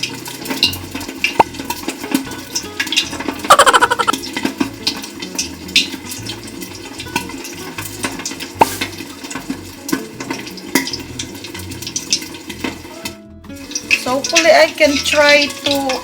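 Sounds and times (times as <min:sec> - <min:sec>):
meat deep-frying in hot oil: 0:00.0 - 0:16.0
oil popping and spattering: 0:00.0 - 0:16.0.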